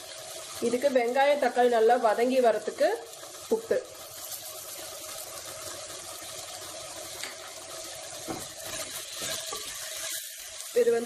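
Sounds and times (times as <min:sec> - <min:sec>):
onions frying in oil: 0:00.0 - 0:11.0.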